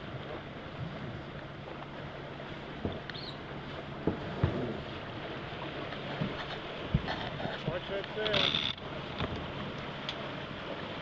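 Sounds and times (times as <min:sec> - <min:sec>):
water rushing along hull: 0:00.0 - 0:11.0
wind: 0:00.0 - 0:11.0.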